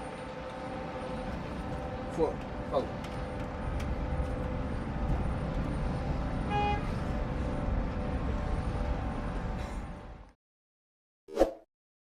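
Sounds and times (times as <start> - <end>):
jet engines rumbling: 0.0 - 10.3
short horn-like beep: 6.5 - 7.0.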